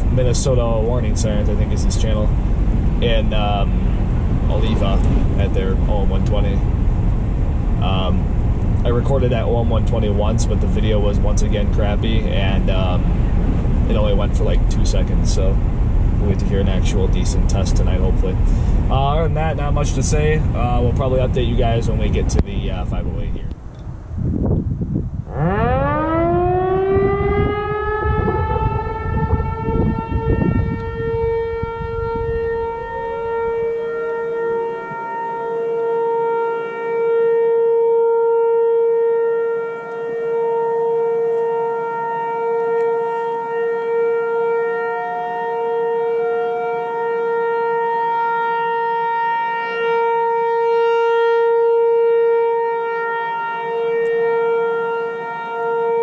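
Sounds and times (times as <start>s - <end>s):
low rumble: 0.0s - 33.8s
warning siren winding up: 25.3s - 56.0s.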